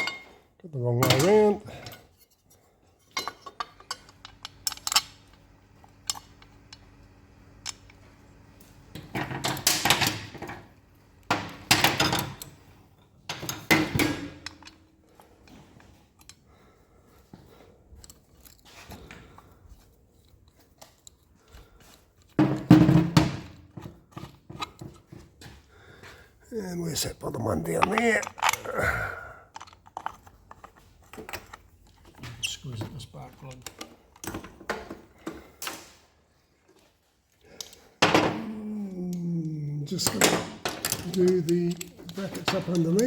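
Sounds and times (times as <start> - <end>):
metal tools clinking: 0.0 - 0.4, 1.0 - 5.4, 27.3 - 34.5, 39.9 - 43.0.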